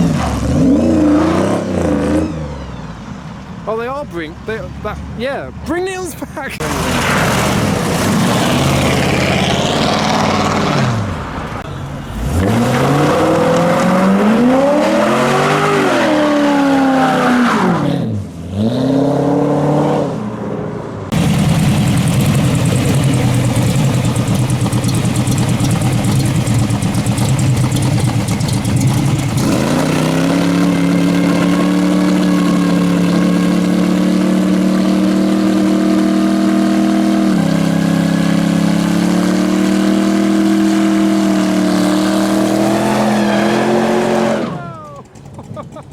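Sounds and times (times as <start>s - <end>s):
car engines revving: 0.0s - 45.9s
steady engine drone: 21.1s - 35.1s.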